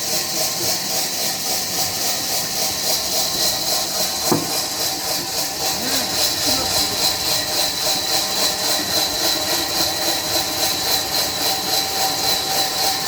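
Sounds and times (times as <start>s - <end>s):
saw cutting wood: 0.0s - 13.0s
sharp knock: 4.3s - 4.6s.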